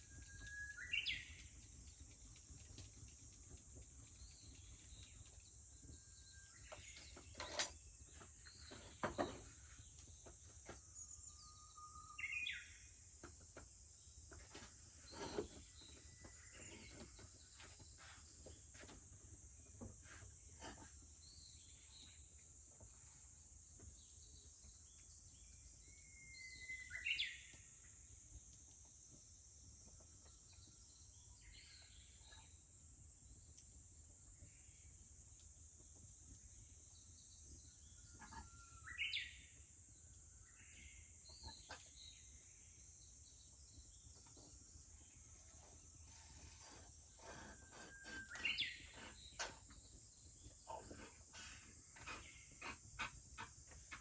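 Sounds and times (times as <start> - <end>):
bush warbler singing: 0.0 - 7.6, 45.6 - 54.0
cicadas droning: 0.0 - 22.3, 23.6 - 54.0.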